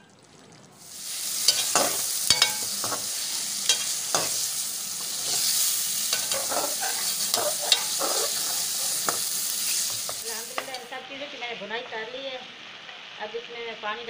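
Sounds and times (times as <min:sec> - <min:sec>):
food sizzling in a pot: 0:00.8 - 0:14.0
spatula scraping a metal pot: 0:05.2 - 0:10.7.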